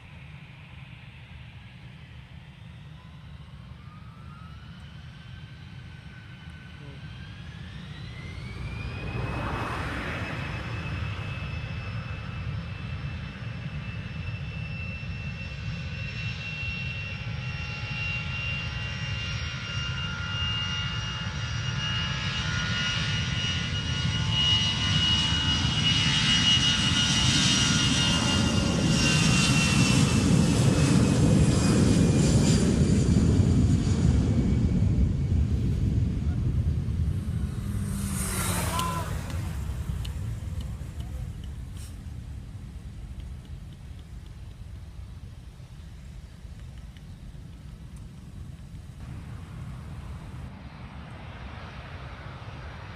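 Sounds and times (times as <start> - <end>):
jet airliner engines passing: 0.0 - 52.9.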